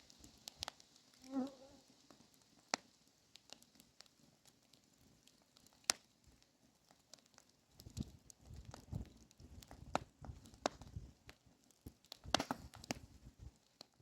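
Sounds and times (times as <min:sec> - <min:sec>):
wood fire popping and crackling: 0:00.0 - 0:14.0
insect buzzing: 0:01.2 - 0:01.8.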